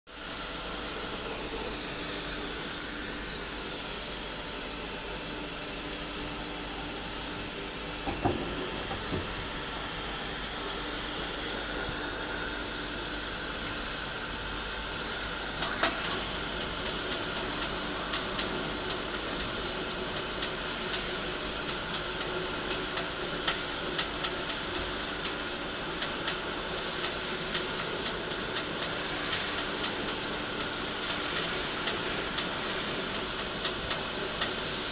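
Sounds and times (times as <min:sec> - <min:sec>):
lathe running with hiss and hum: 0:00.1 - 0:34.9
knocks: 0:08.1 - 0:09.4.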